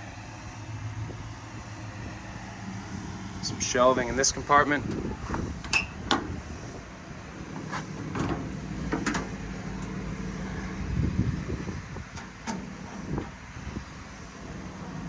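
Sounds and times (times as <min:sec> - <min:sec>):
steady low rumble: 0:00.0 - 0:15.0
metal compartment doors clicking: 0:04.8 - 0:06.5, 0:07.2 - 0:10.5, 0:11.9 - 0:13.5.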